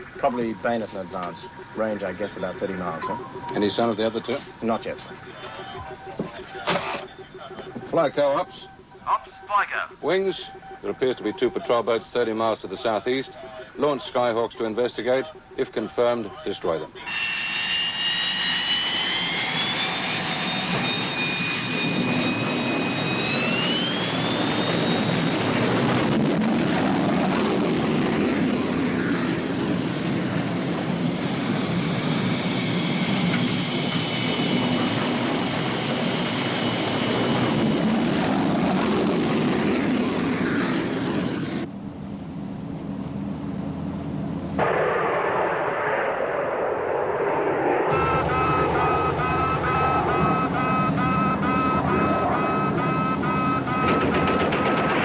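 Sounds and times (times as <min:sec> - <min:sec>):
jet engine roaring: 0:00.0 - 0:15.3, 0:15.9 - 0:41.7, 0:42.3 - 0:55.0.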